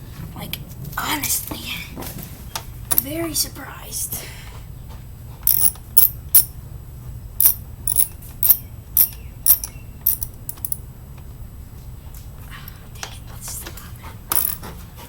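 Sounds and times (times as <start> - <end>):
socket ratchet clicking: 5.5 - 6.5, 7.4 - 10.8, 14.3 - 14.6.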